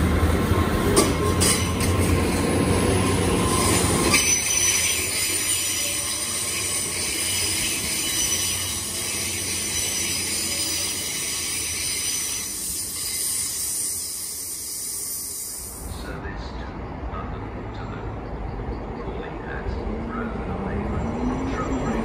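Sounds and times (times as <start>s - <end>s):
train wheels rumbling on rails: 0.0s - 22.0s
high wheel squeal: 1.2s - 15.7s.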